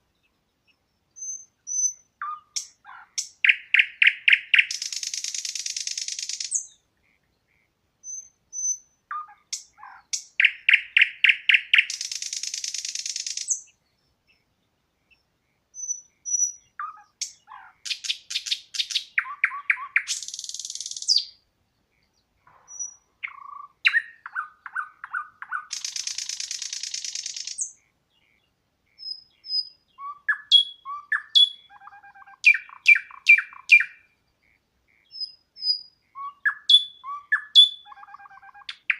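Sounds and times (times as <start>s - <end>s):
songbirds singing: 0.0s - 38.9s
bird whistles and chirps: 1.2s - 6.8s, 8.0s - 13.7s, 15.8s - 21.4s, 22.7s - 27.8s, 29.0s - 34.1s, 35.1s - 38.9s.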